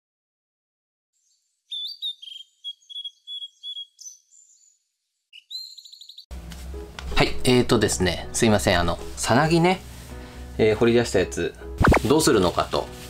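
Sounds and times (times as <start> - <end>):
songbird singing: 1.2 - 6.3.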